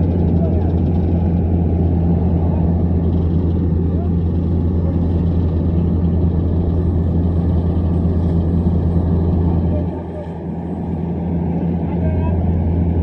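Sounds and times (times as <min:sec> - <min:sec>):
low mechanical hum: 0:00.0 - 0:13.0
murmur of distant voices: 0:00.0 - 0:13.0.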